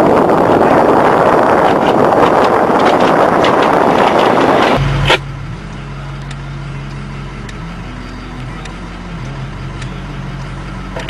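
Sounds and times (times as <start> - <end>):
snow plow rushing through snow: 0.0 - 5.2
low engine hum: 0.0 - 11.0.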